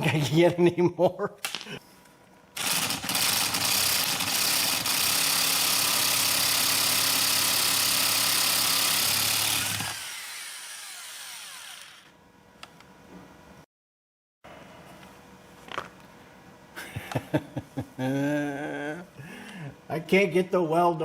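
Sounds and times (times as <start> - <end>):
rotary power tool running: 2.6 - 12.2.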